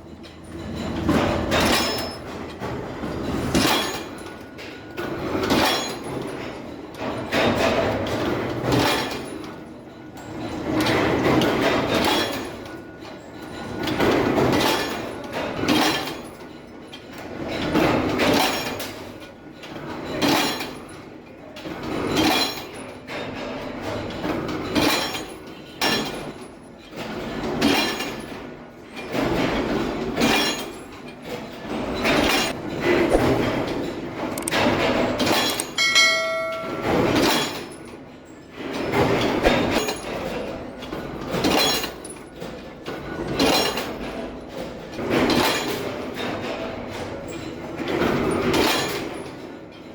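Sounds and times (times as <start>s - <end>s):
metal knocks and clinks: 0.0s - 9.6s, 31.8s - 38.0s.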